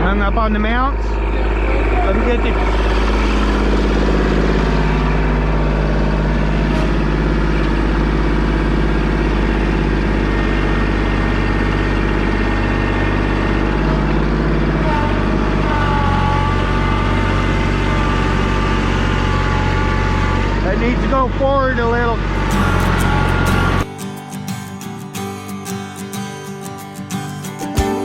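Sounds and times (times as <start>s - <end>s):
engine running at low speed: 0.0s - 23.9s.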